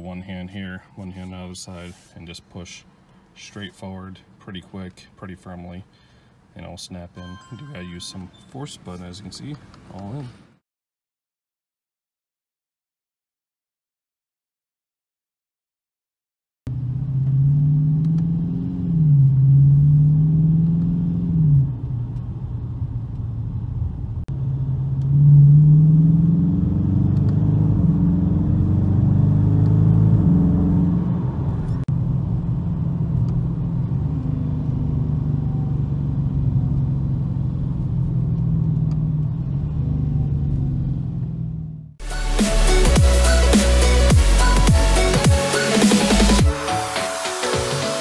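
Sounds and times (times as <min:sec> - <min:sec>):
car engine from inside cabin: 0:16.7 - 0:42.0.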